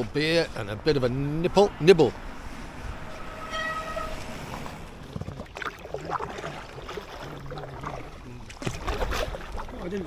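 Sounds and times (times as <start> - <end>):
high steady tone: 2.8 - 4.7
paddling in water: 4.5 - 10.0.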